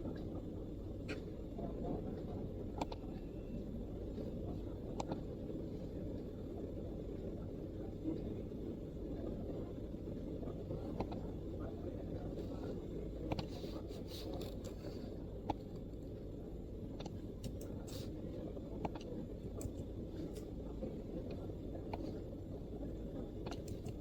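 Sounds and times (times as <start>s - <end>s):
low background rumble: 0.0s - 24.0s
laptop keystrokes: 17.0s - 17.7s, 23.5s - 24.0s.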